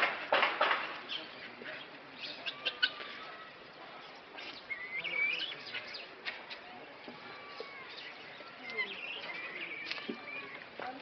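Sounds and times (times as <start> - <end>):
bird chirping and whistling: 4.4 - 6.0, 7.9 - 10.5.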